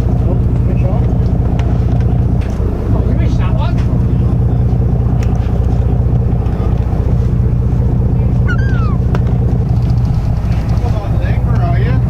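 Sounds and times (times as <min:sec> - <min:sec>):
boat engine running: 0:00.0 - 0:12.0
high falling cry: 0:08.4 - 0:09.1.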